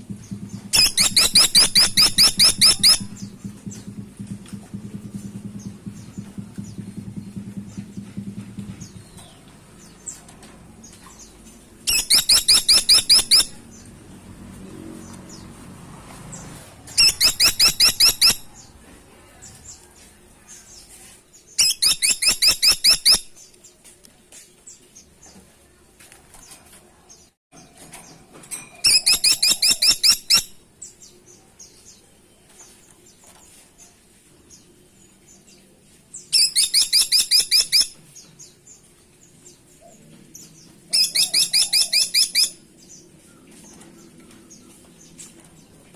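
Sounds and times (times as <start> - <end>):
woodpecker sharp high calls: 0.7 - 3.3, 11.9 - 13.6, 16.9 - 18.6, 21.6 - 23.3, 28.8 - 30.6, 36.4 - 38.0, 40.9 - 42.6.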